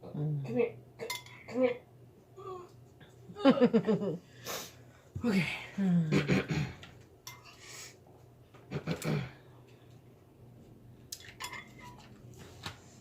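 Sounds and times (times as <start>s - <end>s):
cutlery clinking on dishes: 7.2s - 7.6s, 11.2s - 12.1s.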